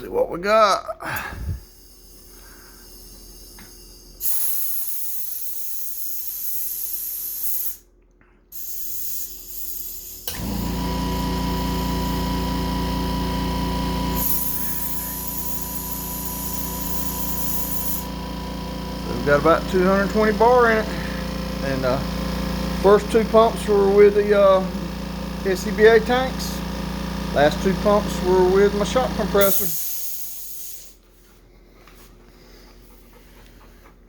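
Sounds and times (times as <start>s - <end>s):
steady motor hum: 1.1s - 6.0s, 8.6s - 29.8s
compressed air hissing: 1.2s - 7.9s, 8.5s - 10.3s, 14.1s - 28.6s, 29.2s - 31.0s.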